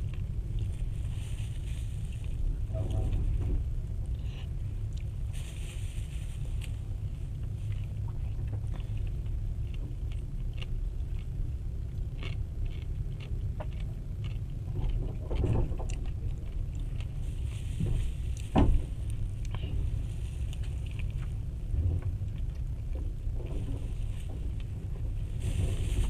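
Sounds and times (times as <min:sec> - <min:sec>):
train carriage rumbling on track: 0:00.0 - 0:10.1, 0:14.7 - 0:26.0
small clicks and rattles: 0:14.7 - 0:17.1.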